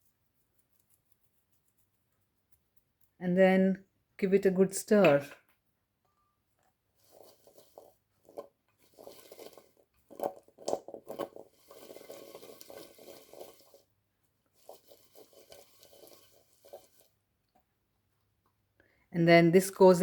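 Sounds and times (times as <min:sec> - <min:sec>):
spoon scraping a bowl: 0:07.0 - 0:13.9, 0:14.6 - 0:17.2.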